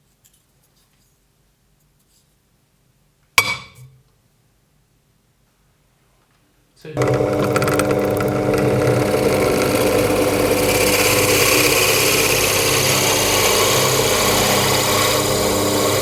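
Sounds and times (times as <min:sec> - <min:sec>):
drill press motor running: 0:07.0 - 0:16.0.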